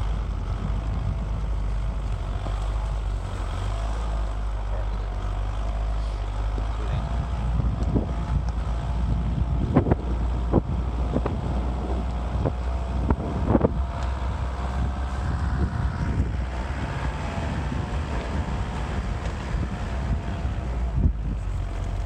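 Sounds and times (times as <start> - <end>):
low rumble: 0.0 - 22.0
motocross bike engine: 0.0 - 22.0
wind buffeting microphone: 0.0 - 22.0.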